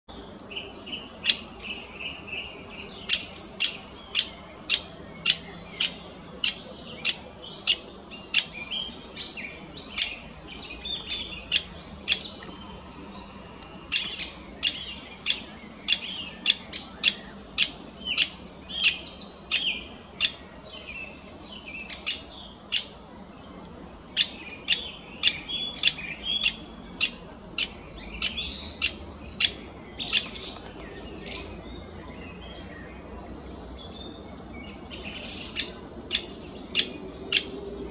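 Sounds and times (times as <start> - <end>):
bird chirps: 0.5 - 23.0.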